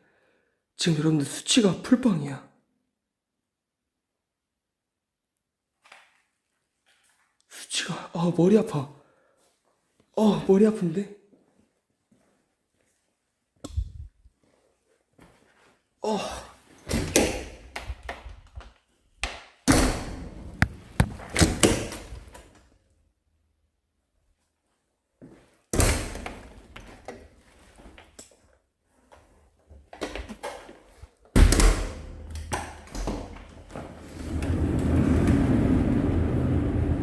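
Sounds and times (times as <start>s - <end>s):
thuds knocks and scraping: 20.6s - 21.8s.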